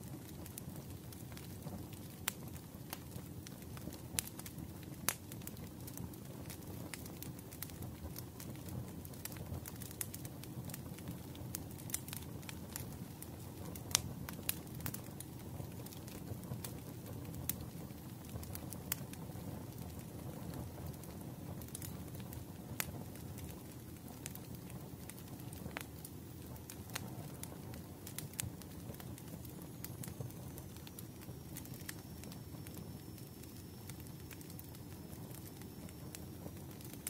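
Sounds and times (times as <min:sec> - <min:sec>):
fireplace crackling and popping: 0:00.0 - 0:37.0.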